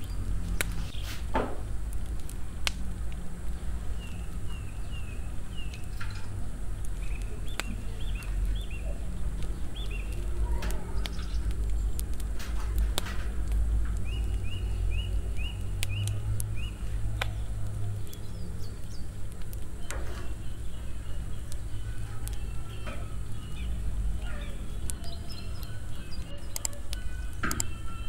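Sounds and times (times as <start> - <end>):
steady low rumble: 0.0 - 27.4
small bird chirping: 3.9 - 6.1, 6.8 - 12.0, 14.0 - 19.2, 19.8 - 27.7.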